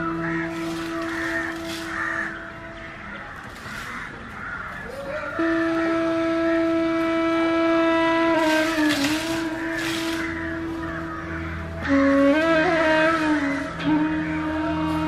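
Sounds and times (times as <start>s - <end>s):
droning pitched tone: 0.0s - 3.4s
crows cawing: 0.0s - 6.0s, 8.4s - 12.0s.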